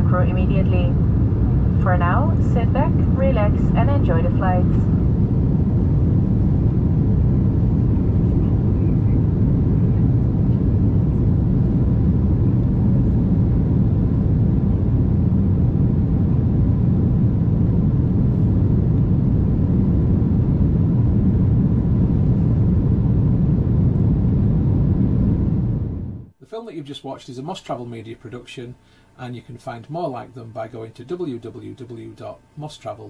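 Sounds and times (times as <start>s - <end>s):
faint steady hum: 0.0s - 33.0s
jet engine and airflow rumble: 0.0s - 33.0s.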